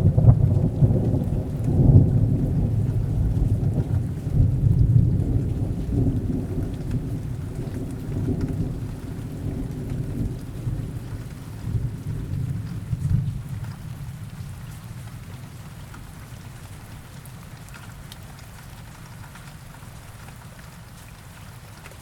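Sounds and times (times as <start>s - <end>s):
low rolling thunder: 0.0s - 15.6s
rain: 0.0s - 22.0s.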